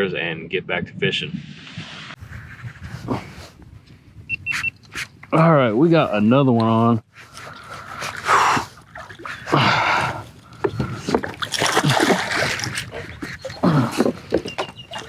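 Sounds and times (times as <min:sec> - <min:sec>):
fish splashing at water surface: 0:11.1 - 0:15.0.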